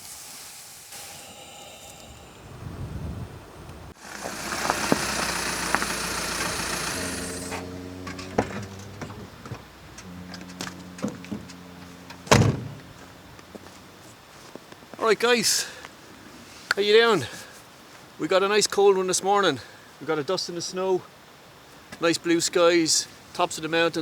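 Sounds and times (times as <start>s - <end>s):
loud rushing hiss: 0.0s - 7.8s
van engine idling: 3.9s - 14.6s
sharp thump: 12.2s - 12.8s.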